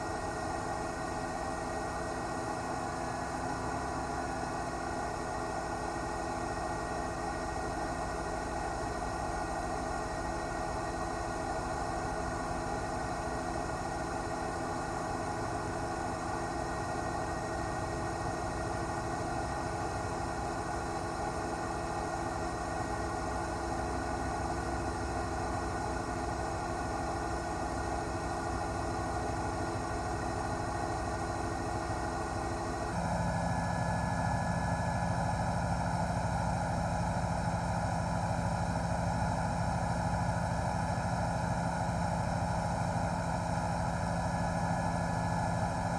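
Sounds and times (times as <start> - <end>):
helicopter engine and rotor: 0.0 - 45.9.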